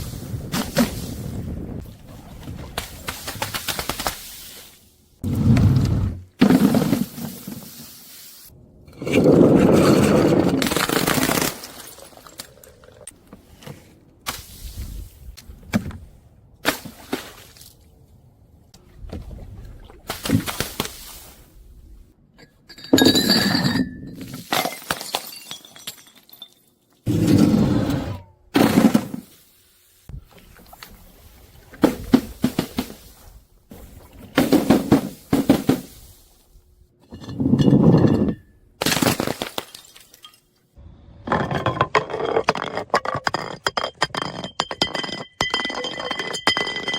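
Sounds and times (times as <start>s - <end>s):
glass bottles shattering: 10.6s - 12.7s, 22.6s - 26.8s, 37.1s - 40.5s, 43.6s - 46.9s.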